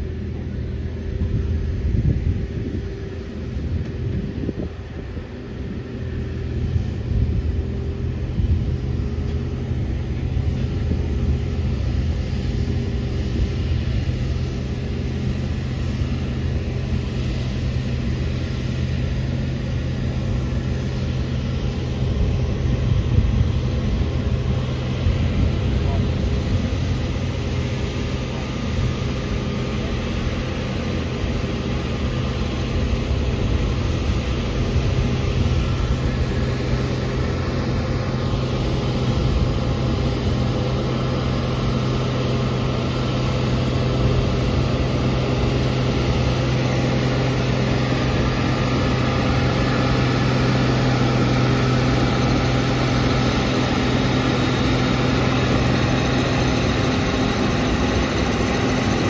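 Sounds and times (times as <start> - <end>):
heavy tractor engine running: 0.0 - 59.0.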